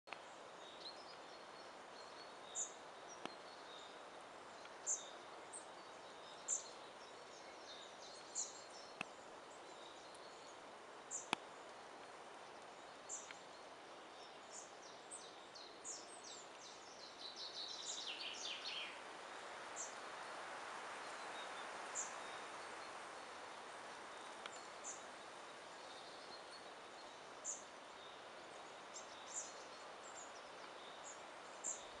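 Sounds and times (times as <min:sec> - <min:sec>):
faint hiss: 0:00.1 - 0:32.0.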